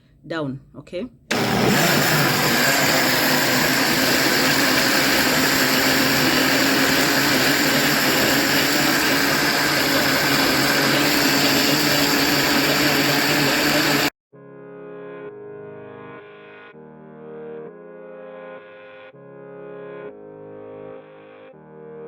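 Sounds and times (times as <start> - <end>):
blender motor whirring: 1.3 - 14.1.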